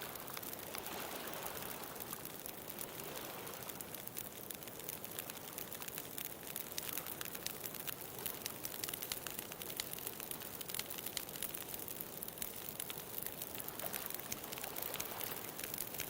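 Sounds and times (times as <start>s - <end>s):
bonfire crackling and popping: 0.0s - 16.0s.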